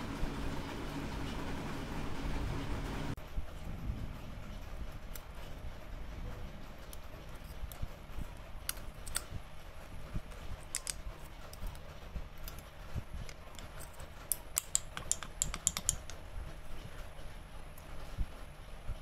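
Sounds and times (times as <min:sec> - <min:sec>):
small hard objects clicking: 0:13.6 - 0:16.2.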